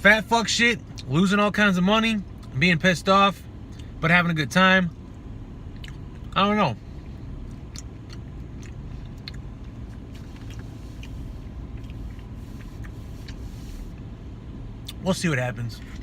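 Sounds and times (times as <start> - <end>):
steady low rumble: 0.0 - 16.0
person chewing: 5.7 - 6.3, 7.4 - 13.5.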